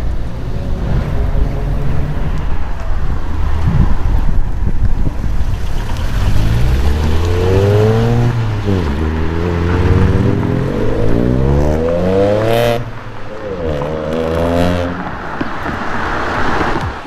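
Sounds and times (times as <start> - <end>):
sports car engine accelerating: 5.9 - 15.2.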